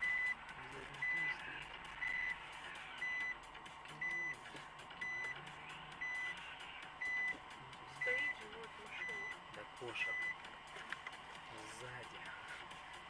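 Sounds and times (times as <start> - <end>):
electronic warning beep: 0.0 - 0.4, 1.0 - 1.4, 2.0 - 2.4, 3.0 - 4.4, 5.0 - 9.4, 10.0 - 10.4.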